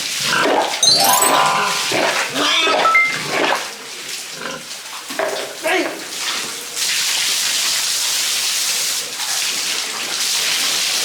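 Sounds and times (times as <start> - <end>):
music: 0.8 - 2.2, 2.8 - 3.2.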